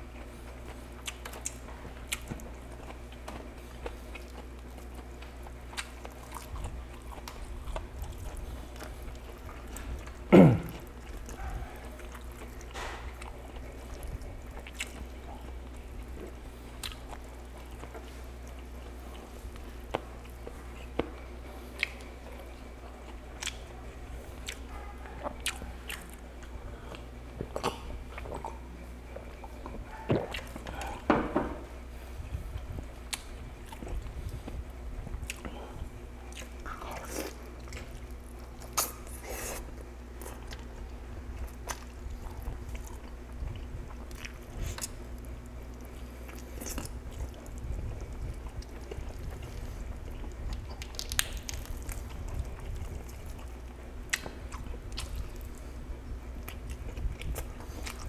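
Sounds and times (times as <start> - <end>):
man chewing chicken: 0.0 - 58.0
wet mouth clicks and smacks: 50.8 - 51.8.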